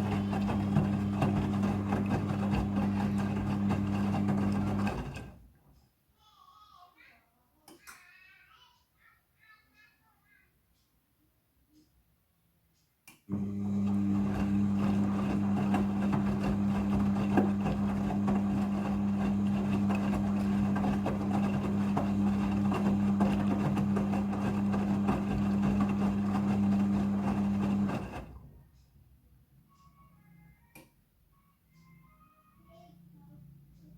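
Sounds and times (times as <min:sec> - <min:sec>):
water and clothes churning: 0:00.0 - 0:05.3, 0:13.3 - 0:28.3
washing machine motor hum: 0:00.0 - 0:05.5, 0:13.3 - 0:28.6.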